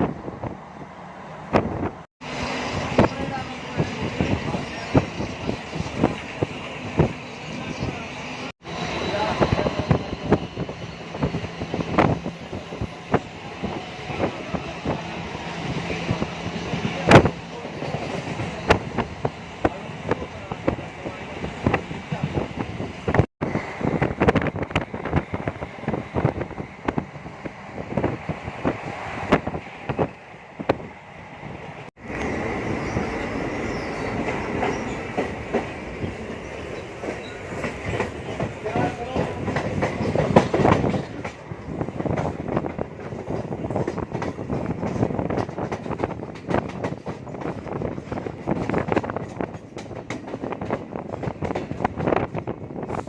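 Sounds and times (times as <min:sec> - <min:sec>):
train wheels clattering over rail joints: 0:33.9 - 0:53.0.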